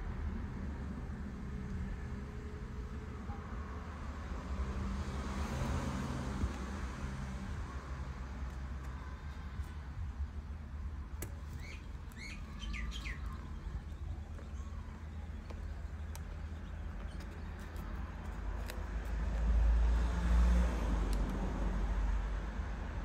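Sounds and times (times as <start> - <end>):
small bird chirping: 11.2 - 18.8.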